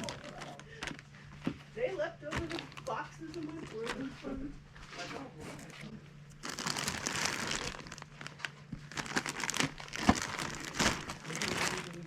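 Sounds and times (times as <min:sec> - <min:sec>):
material crinkling and rustling: 0:00.0 - 0:05.2, 0:06.3 - 0:12.0.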